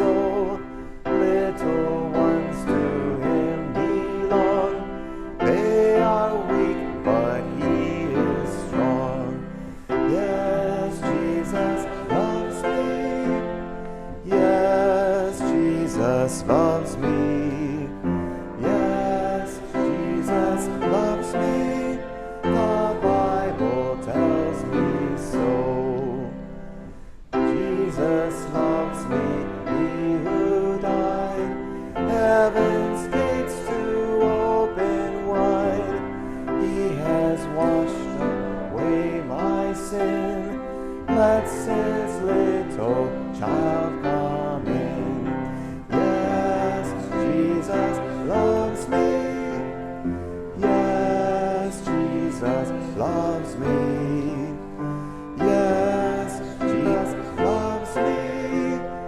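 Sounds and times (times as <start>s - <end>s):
person singing with vibrato: 0.0s - 59.0s
piano: 0.0s - 59.0s.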